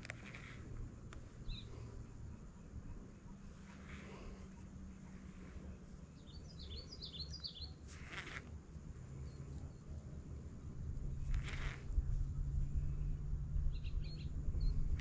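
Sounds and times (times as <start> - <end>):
small bird chirping: 0.0 - 2.1, 3.3 - 8.4, 11.1 - 12.0, 13.6 - 15.0
low hum and rumble: 0.0 - 15.0
short hissing noises: 11.3 - 11.9.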